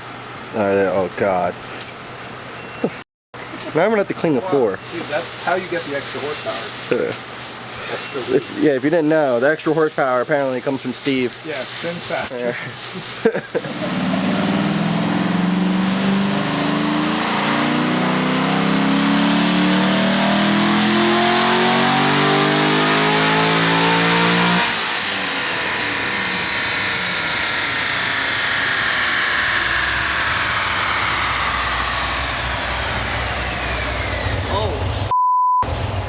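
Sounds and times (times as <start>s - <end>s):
dyno rollers whining: 3.9s - 36.0s
car engine at full throttle: 13.6s - 36.0s.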